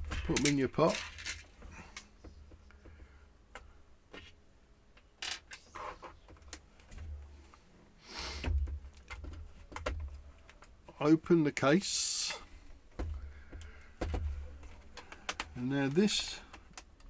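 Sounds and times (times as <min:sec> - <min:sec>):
plastic parts clicking and knocking: 0:00.0 - 0:04.3, 0:08.5 - 0:10.7, 0:13.0 - 0:17.0.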